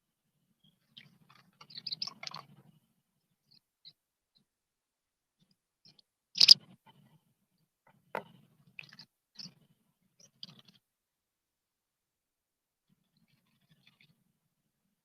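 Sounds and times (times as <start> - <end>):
birds making short sharp sounds: 1.0 - 2.6, 5.9 - 6.8.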